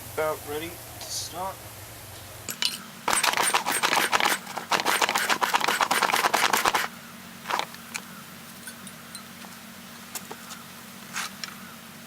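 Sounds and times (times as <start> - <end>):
faint steady hum: 0.0 - 12.0
small hard objects clattering: 2.5 - 6.8.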